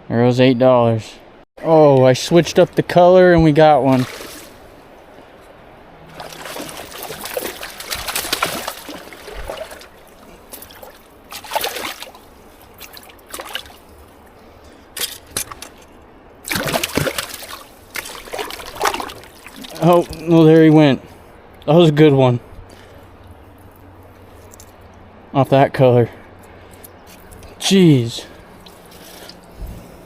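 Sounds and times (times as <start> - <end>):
fish thrashing and splashing water: 3.8 - 4.8, 6.0 - 20.3, 28.4 - 29.6.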